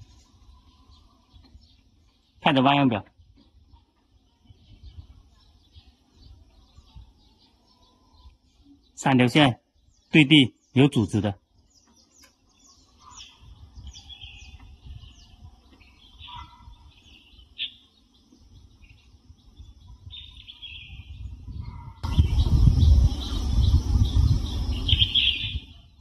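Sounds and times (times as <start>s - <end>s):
small birds chirping: 0.0s - 26.0s
low rumble: 22.0s - 25.7s.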